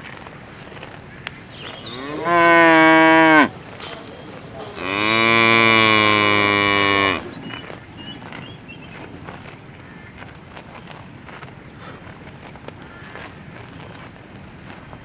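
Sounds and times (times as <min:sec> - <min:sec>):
cow mooing: 0:01.8 - 0:03.6, 0:04.8 - 0:07.4.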